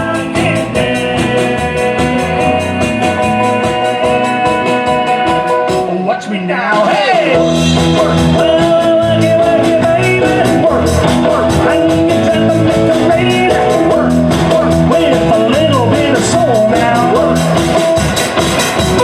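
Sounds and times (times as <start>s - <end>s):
steady drum beat: 0.0s - 6.1s, 6.7s - 19.0s
bass guitar: 0.0s - 19.0s
electric guitar lines: 7.4s - 19.0s.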